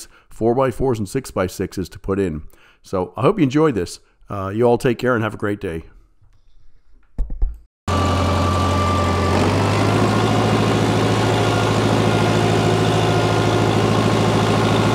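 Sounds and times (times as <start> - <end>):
large engine starting and idling: 7.9 - 14.9.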